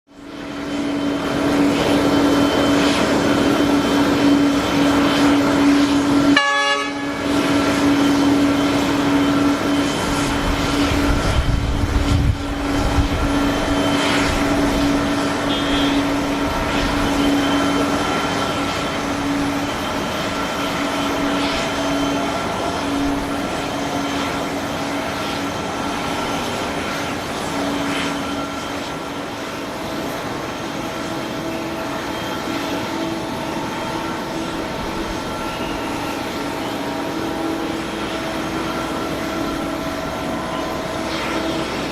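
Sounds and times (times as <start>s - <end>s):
steady mechanical drone: 0.1s - 41.9s
multi-tone air horn blast: 6.2s - 7.6s, 15.2s - 17.8s.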